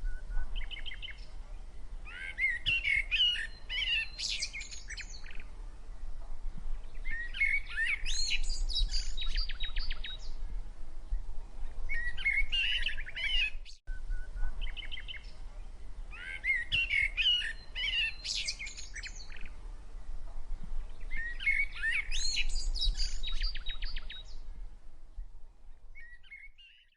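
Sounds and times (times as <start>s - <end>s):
sparrows chirping and trilling: 2.1s - 5.5s, 6.9s - 10.4s, 14.5s - 19.6s, 20.8s - 24.5s.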